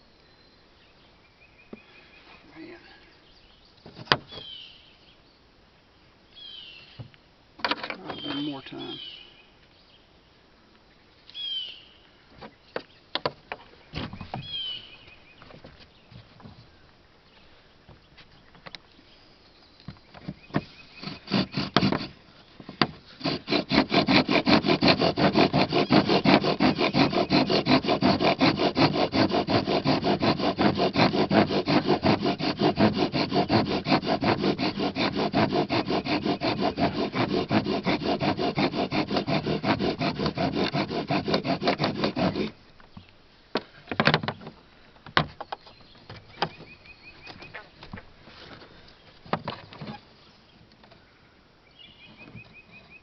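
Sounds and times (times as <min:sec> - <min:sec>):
wooden spindle rubbing in fireboard: 0:20.5 - 0:42.6.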